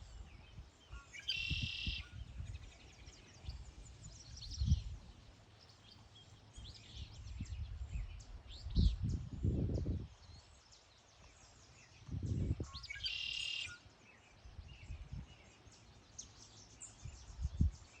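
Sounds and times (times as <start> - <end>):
songbird chirping: 0.0 - 18.0
buzzy bird trill: 1.2 - 2.0.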